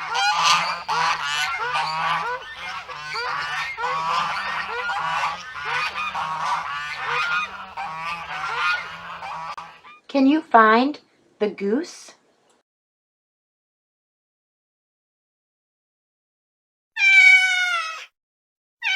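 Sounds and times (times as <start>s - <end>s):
geese honking: 0.0s - 10.0s.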